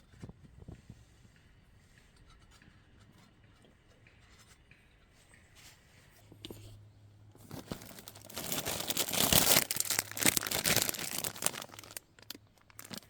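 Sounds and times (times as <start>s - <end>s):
crinkling rustle of handling: 7.3s - 13.0s.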